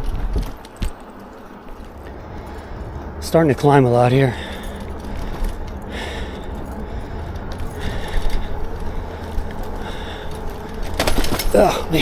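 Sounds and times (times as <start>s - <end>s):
tyres rumbling on bumpy path: 0.0s - 12.0s
wind: 0.0s - 12.0s
battery rattling in mount: 6.5s - 12.0s.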